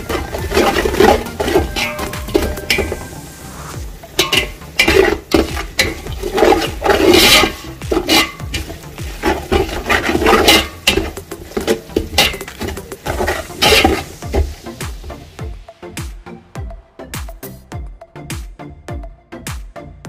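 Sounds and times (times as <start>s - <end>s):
spoon scraping a cooking pot: 0.0s - 14.6s.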